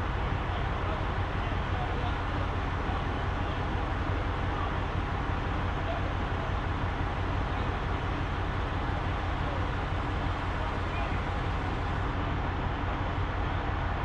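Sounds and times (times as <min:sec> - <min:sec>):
road noise: 0:00.0 - 0:14.0
truck diesel engine drone: 0:00.0 - 0:14.0.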